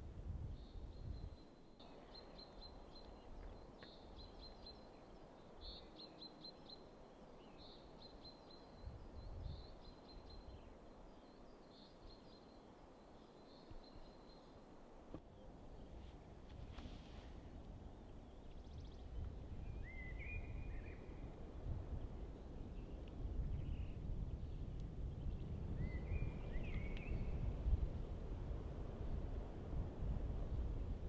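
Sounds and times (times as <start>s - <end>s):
small birds chirping: 0.6s - 16.2s, 17.8s - 21.4s, 22.0s - 27.5s.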